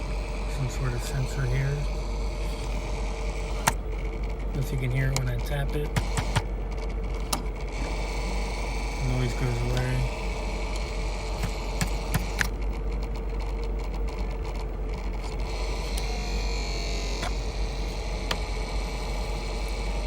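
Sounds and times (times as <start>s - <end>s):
low hum: 0.0s - 20.0s
small fan rattling whir: 0.0s - 20.0s
sharp clicks: 5.1s - 7.5s, 10.7s - 12.8s.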